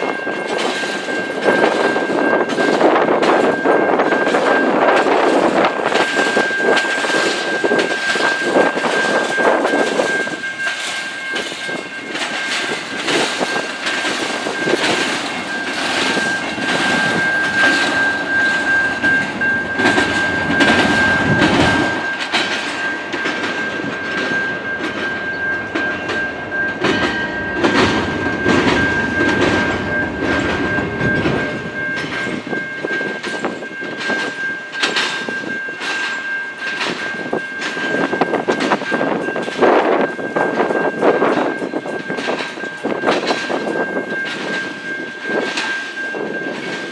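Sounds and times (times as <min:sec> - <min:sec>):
steady high-pitched tone: 0:00.0 - 0:36.3
train wheels clattering: 0:00.0 - 0:46.9.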